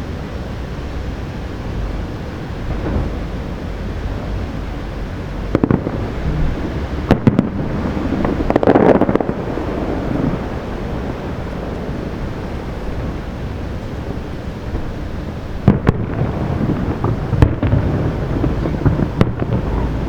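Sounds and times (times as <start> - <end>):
steady low rumble: 0.0 - 20.0
firework shells bursting: 5.4 - 11.9, 15.6 - 20.0.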